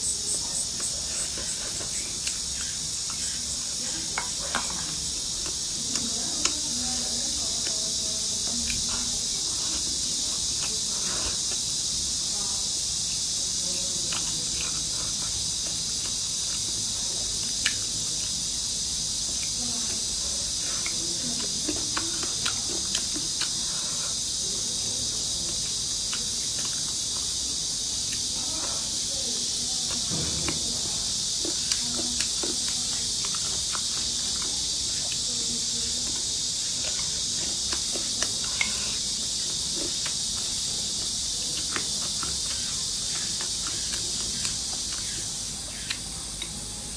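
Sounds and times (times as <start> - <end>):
sharp clicks and taps from eating: 0.0 - 7.0, 14.1 - 16.8, 20.8 - 23.6, 29.8 - 35.3, 36.0 - 46.6
crickets chirping: 0.0 - 46.9.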